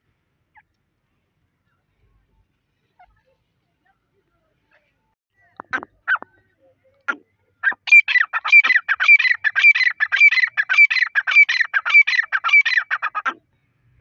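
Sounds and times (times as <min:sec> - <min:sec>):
partridge calling: 0:05.6 - 0:06.4, 0:07.0 - 0:13.4.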